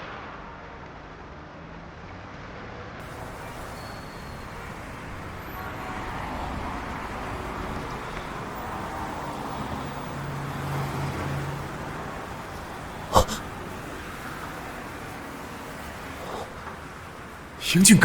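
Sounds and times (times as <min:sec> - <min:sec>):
street traffic noise: 0:03.0 - 0:18.0.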